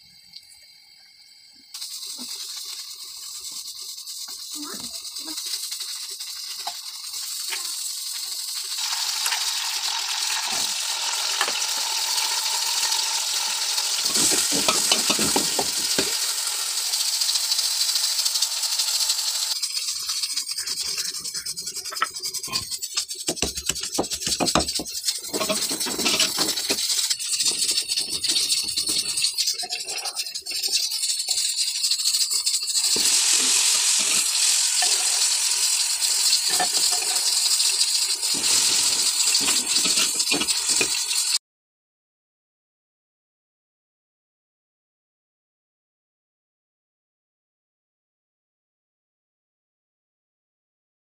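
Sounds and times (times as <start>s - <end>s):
onions sizzling in oil: 0.2s - 41.4s
metal spatula scraping pot: 13.9s - 16.2s, 19.9s - 41.4s.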